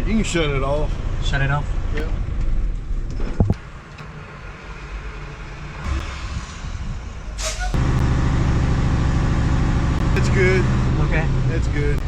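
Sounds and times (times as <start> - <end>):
diesel engine starting and idling: 0.0 - 12.0
air hiss burst: 5.8 - 7.8.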